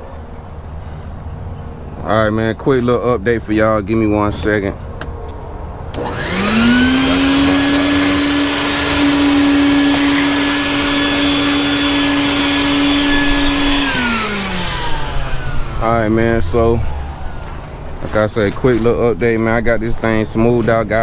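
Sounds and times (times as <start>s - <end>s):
small electric motor whining: 5.9s - 18.1s.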